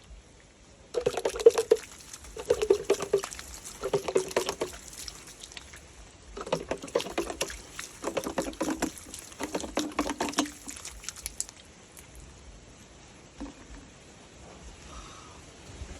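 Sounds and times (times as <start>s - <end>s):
water splashing and dribbling: 0.9s - 12.4s, 13.2s - 13.9s.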